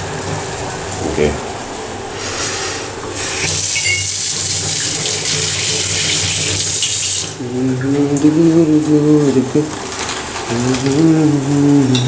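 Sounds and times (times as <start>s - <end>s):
tap water running into sink: 2.8s - 12.0s.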